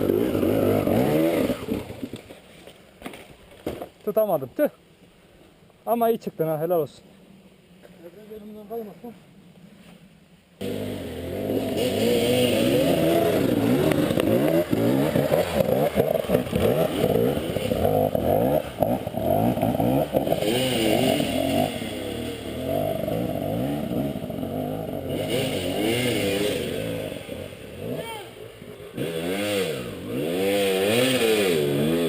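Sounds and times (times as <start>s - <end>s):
motorcycle engine revving: 0.0s - 2.2s, 10.6s - 32.0s.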